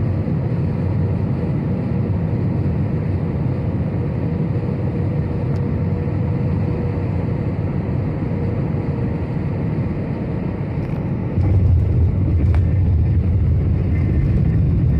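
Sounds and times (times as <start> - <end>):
aeroplane cabin engine rumble: 0.0 - 14.9.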